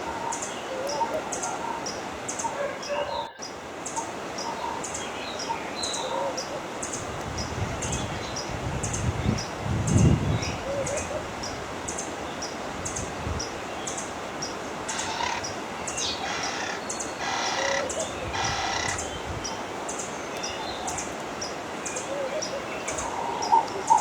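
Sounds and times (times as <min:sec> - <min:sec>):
harsh raspy bird calls: 0:14.9 - 0:19.2.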